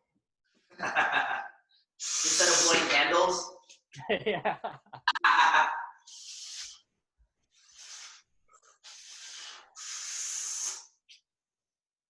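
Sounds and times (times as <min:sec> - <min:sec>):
person breathing hard: 0:05.9 - 0:06.9, 0:07.5 - 0:11.0.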